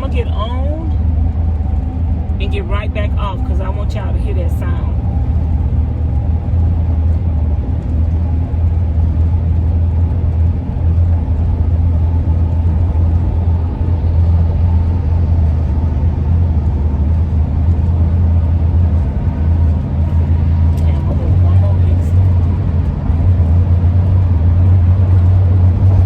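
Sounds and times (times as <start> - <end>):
road and engine rumble: 0.0 - 26.0
wind howling over roof rack: 0.9 - 2.4.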